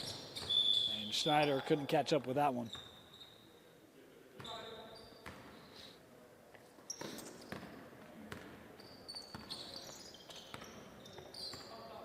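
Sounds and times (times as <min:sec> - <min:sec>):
sneakers squeaking on court: 0:00.0 - 0:01.8, 0:02.6 - 0:03.6, 0:04.4 - 0:05.7, 0:06.8 - 0:12.0
basketball bouncing on gym floor: 0:06.9 - 0:09.8, 0:10.4 - 0:11.8.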